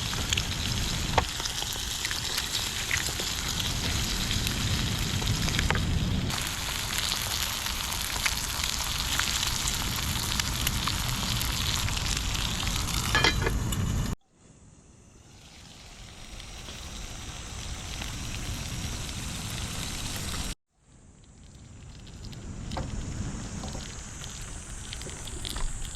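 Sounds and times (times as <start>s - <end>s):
food sizzling and crackling: 0.0s - 14.2s, 15.0s - 20.6s, 21.2s - 25.9s.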